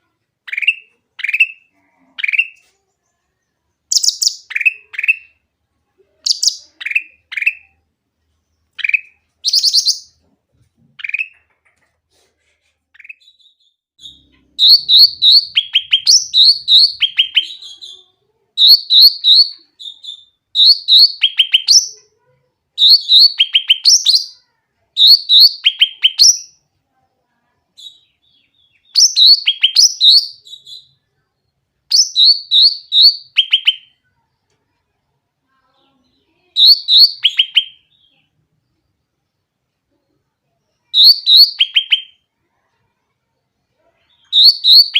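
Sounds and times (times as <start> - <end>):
bird singing loudly: 3.9 - 5.3, 8.8 - 10.1, 13.3 - 17.9, 18.6 - 22.0, 22.8 - 24.4, 25.0 - 26.6, 27.8 - 30.9, 31.9 - 33.9, 36.6 - 38.1, 41.0 - 42.2, 44.2 - 44.9.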